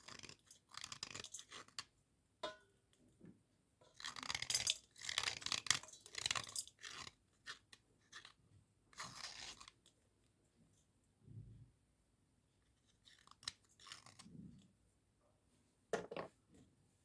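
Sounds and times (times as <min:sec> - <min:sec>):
slate pencils crunching and scraping: 0:04.0 - 0:07.6.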